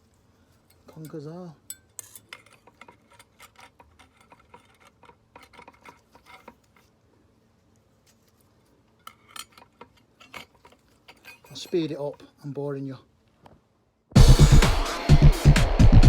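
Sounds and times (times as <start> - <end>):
metal clutch plates clinking: 0.7 - 6.8, 9.0 - 12.2.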